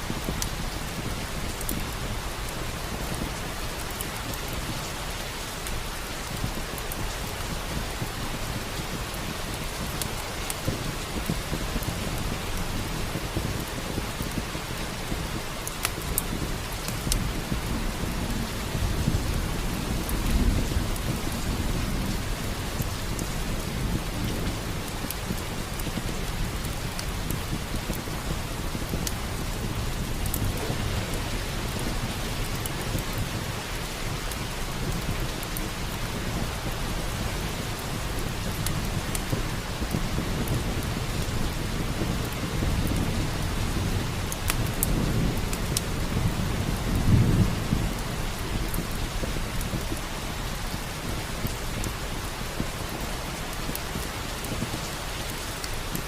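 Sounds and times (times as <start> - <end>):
heavy rain: 0.0 - 56.0
log fire crackling: 0.0 - 56.0
thunder rumbling: 10.6 - 53.0.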